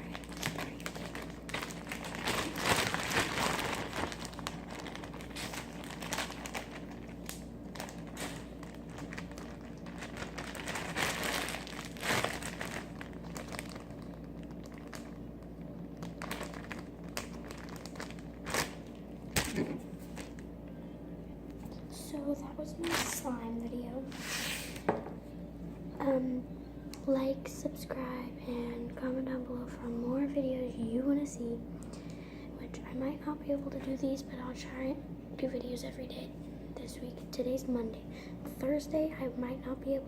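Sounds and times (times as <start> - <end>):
crinkling handling noises: 0.0 - 20.5, 22.8 - 23.3.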